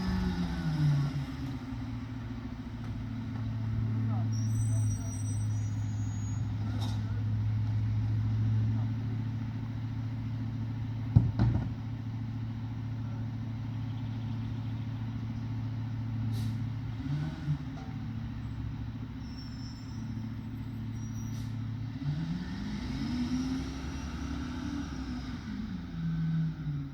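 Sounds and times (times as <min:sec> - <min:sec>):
engine revving up: 0:00.0 - 0:01.8, 0:16.4 - 0:17.8, 0:21.9 - 0:26.5
diesel truck engine idling: 0:00.0 - 0:17.0.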